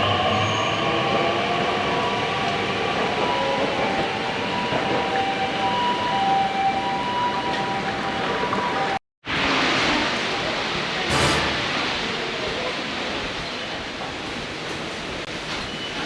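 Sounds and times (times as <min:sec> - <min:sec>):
steady high tones: 0:11.1 - 0:12.2
train wheels rumbling: 0:11.1 - 0:12.8.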